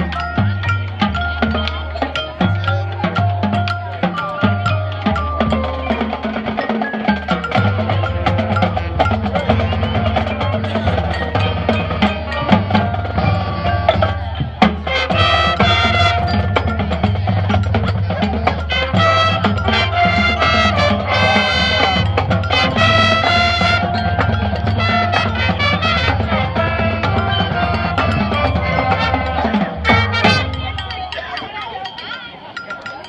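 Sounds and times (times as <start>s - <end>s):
drum and wood-block strokes: 0.0s - 33.0s
mallet percussion: 0.0s - 33.0s
marching band playing: 0.0s - 33.0s.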